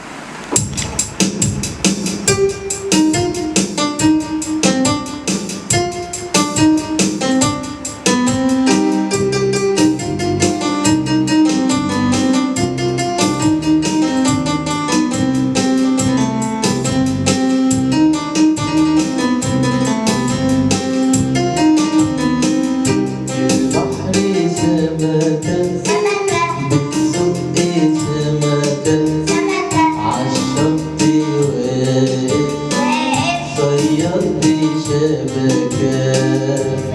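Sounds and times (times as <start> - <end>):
keyboard melody over beat: 0.5 - 36.9
person singing: 23.3 - 36.9.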